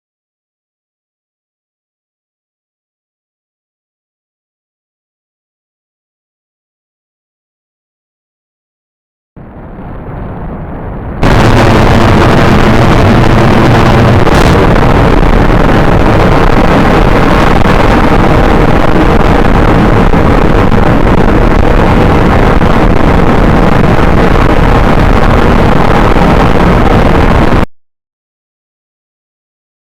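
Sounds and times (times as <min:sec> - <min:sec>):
loud engine running: 0:11.2 - 0:27.4.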